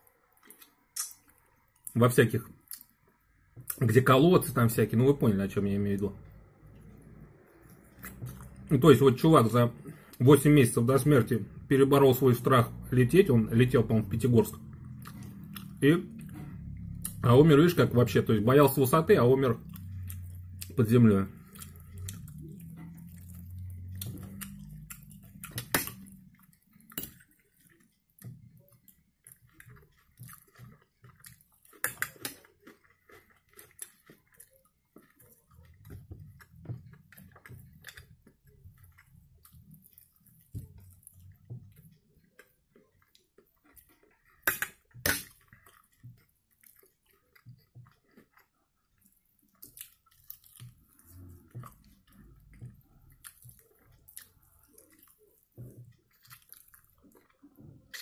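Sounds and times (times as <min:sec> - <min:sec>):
sharp mouth clicks: 0:01.0 - 0:01.3
close chewing: 0:05.9 - 0:08.7, 0:12.3 - 0:58.0.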